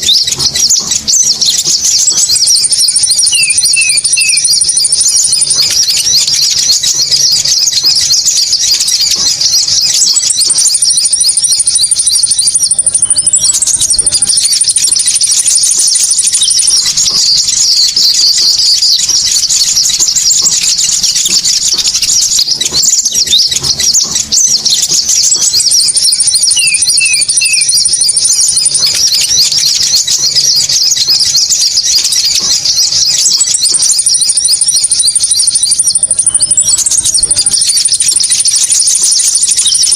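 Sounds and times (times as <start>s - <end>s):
high bird trill: 0.0s - 39.9s
high-pitched bird chirps: 0.0s - 39.9s.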